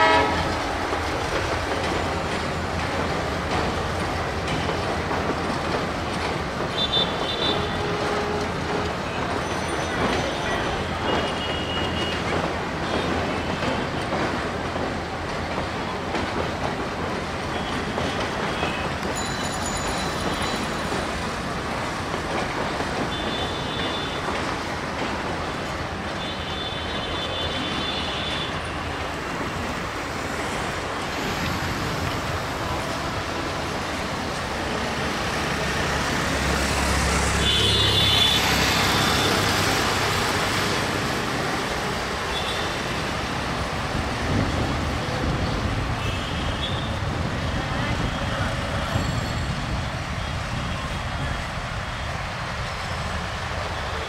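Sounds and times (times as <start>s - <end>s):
high-pitched train toots: 0.0s - 0.6s
city traffic noise: 0.0s - 54.0s
diesel locomotive rumbling: 0.0s - 54.0s.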